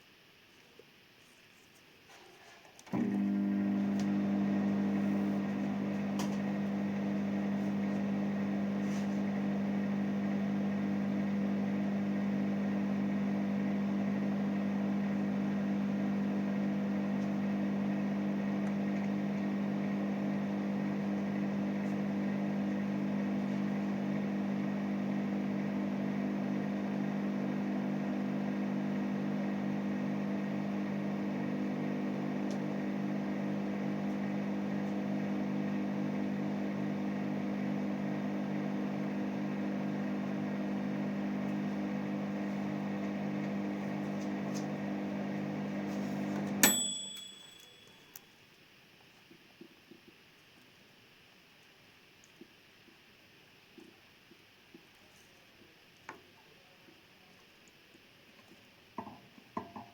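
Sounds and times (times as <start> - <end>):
microwave oven humming: 2.9 - 48.2.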